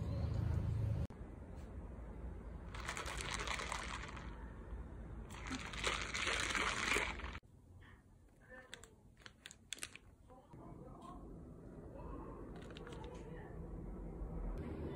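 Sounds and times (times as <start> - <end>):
milk tea sloshing in plastic cup: 2.7 - 4.4, 5.3 - 7.4
paper wrapper crinkling: 2.7 - 4.4, 5.3 - 7.4.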